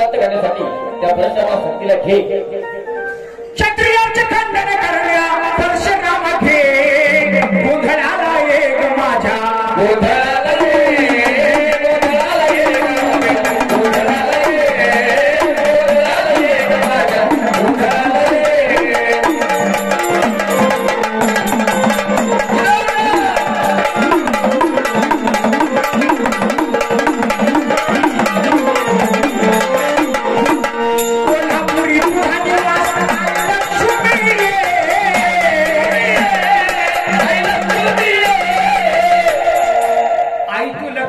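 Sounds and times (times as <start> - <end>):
drums with bending pitch: 5.6 - 40.4
sustained melodic accompaniment: 10.6 - 39.1.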